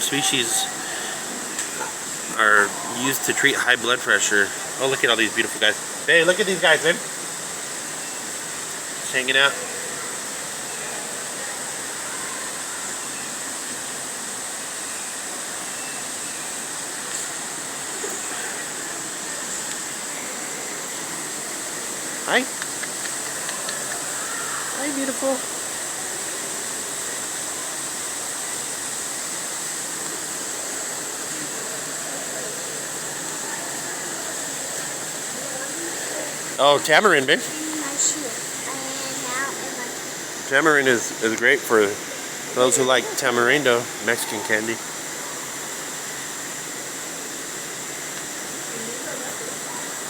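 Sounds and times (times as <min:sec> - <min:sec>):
steady rushing hiss: 0:00.0 - 0:50.0.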